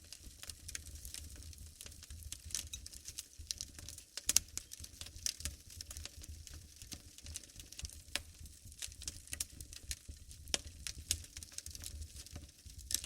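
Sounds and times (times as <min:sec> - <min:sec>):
fire crackling and popping: 0:00.0 - 0:13.0
low rumble of flame: 0:00.0 - 0:13.0.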